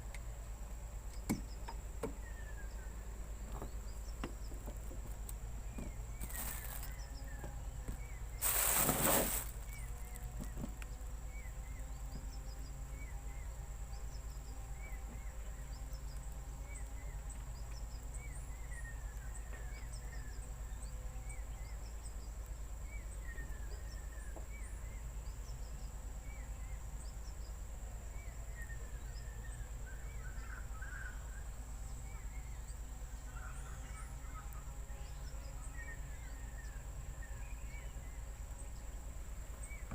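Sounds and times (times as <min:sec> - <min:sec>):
high insect drone: 0:00.3 - 0:39.9
loud rustling: 0:06.2 - 0:06.9, 0:08.4 - 0:10.1.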